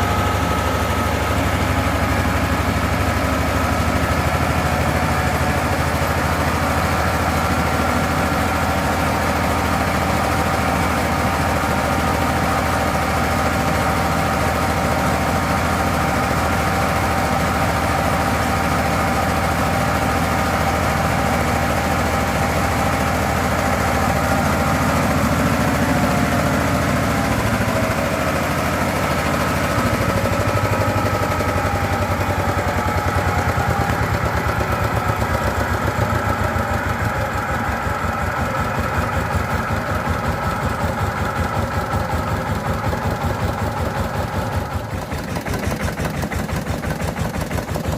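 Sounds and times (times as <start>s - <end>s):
diesel engine running: 0.0s - 47.9s
high whine of milling machinery: 0.0s - 47.9s.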